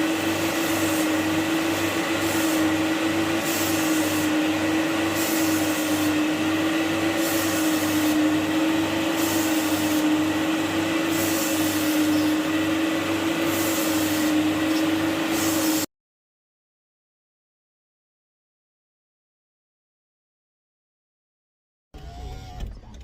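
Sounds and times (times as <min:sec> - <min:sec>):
carpet cleaning machine whine: 0:00.0 - 0:15.9, 0:22.0 - 0:23.0.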